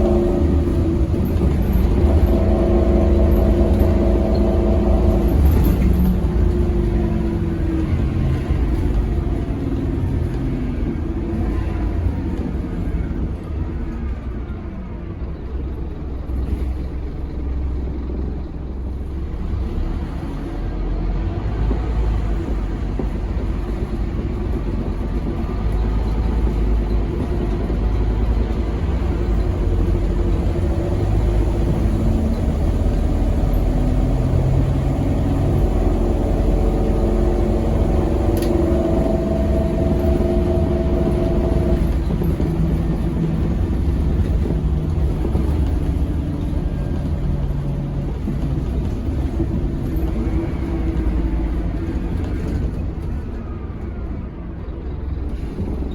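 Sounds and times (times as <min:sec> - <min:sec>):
bus diesel engine running: 0:00.0 - 0:55.9
low road rumble: 0:00.0 - 0:55.9.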